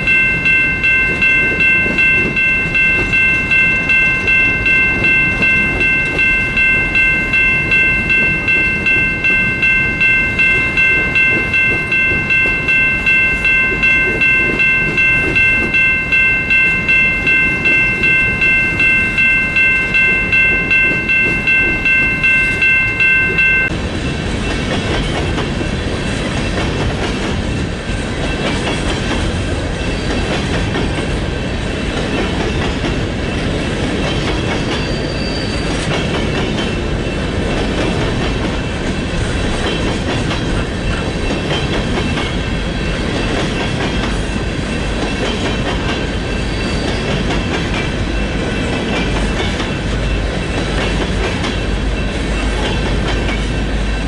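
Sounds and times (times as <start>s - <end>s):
bell ringing: 0.0s - 23.7s
train wheels rolling on rail: 0.0s - 54.0s.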